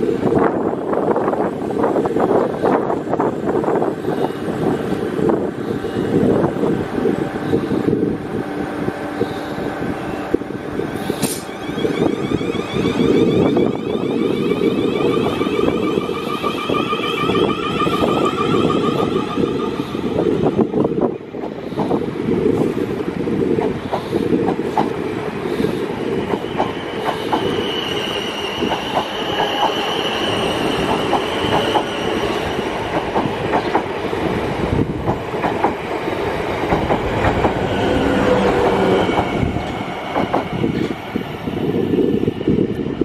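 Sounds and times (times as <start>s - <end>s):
train wheels clicking over rail joints: 21.4s - 25.0s, 25.6s - 27.6s, 32.8s - 37.7s, 38.4s - 41.0s.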